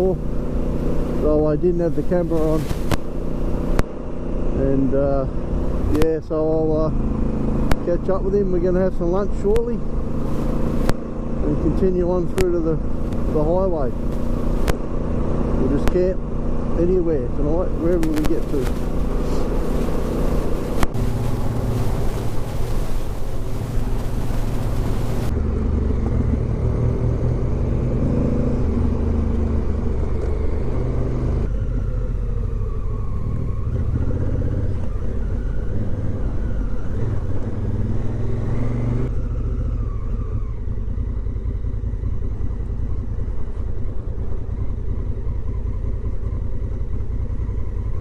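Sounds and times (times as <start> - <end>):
motorcycle engine running: 0.0 - 27.9, 39.1 - 48.0.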